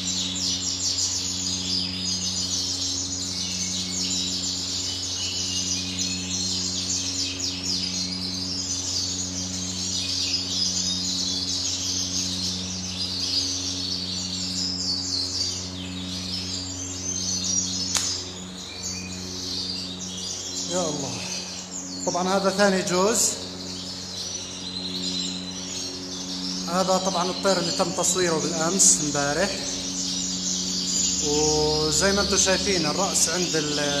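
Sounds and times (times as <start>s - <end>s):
caged birds chirping: 0.0s - 34.0s
steady low hum: 0.0s - 34.0s
sharp click: 17.9s - 18.3s.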